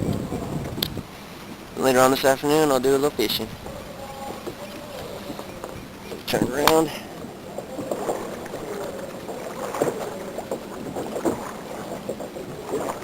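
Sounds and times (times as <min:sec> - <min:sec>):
water splashing around kayak: 0:00.0 - 0:13.0
paddle splashes and knocks: 0:03.2 - 0:13.0.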